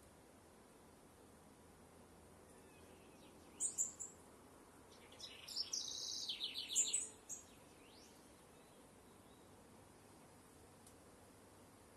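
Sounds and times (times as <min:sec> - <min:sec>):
bird singing: 0:02.5 - 0:04.2, 0:04.9 - 0:09.5.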